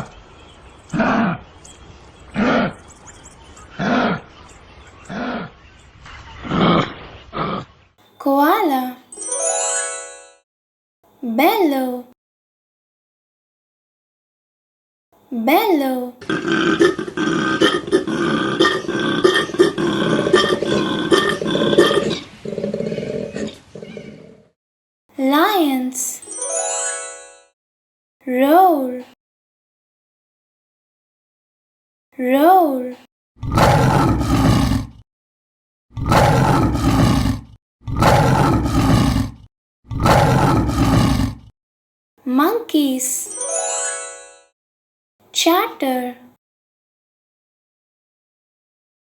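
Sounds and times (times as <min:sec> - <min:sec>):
lion roaring: 0:00.9 - 0:01.4, 0:02.4 - 0:02.8, 0:03.8 - 0:04.3, 0:05.1 - 0:05.6, 0:06.4 - 0:07.7, 0:16.2 - 0:24.5, 0:33.4 - 0:35.0, 0:36.0 - 0:41.5.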